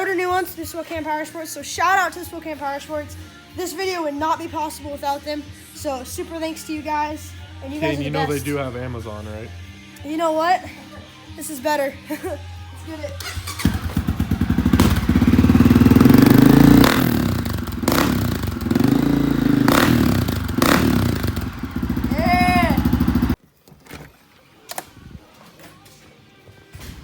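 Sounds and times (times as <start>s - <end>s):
dirt bike engine revving: 13.2s - 23.4s.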